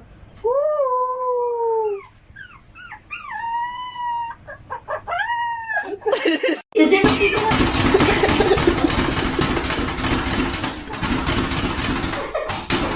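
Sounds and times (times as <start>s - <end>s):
dog yipping: 1.8s - 6.1s
dog howling: 2.8s - 6.1s.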